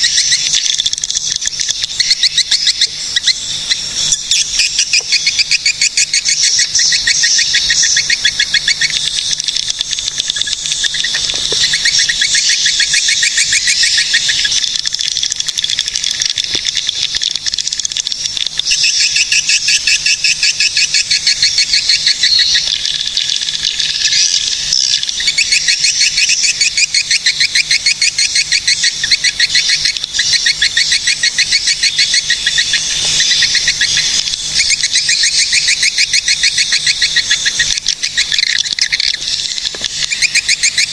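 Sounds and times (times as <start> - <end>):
swiftlets twittering: 0.0 - 40.9.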